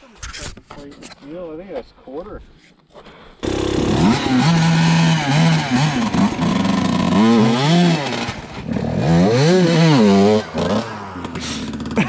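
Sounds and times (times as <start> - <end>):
dirt bike engine revving: 3.4 - 12.0.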